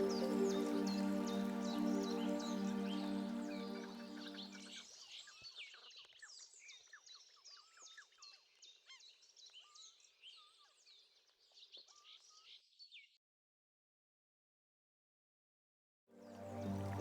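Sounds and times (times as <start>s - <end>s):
soft music: 0.0s - 4.8s, 16.2s - 17.0s
small birds chirping and twittering: 0.0s - 12.4s.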